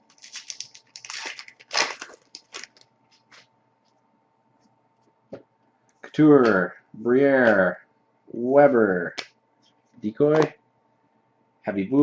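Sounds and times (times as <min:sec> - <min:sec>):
foil wrapper crinkling and tearing: 0:00.0 - 0:03.4.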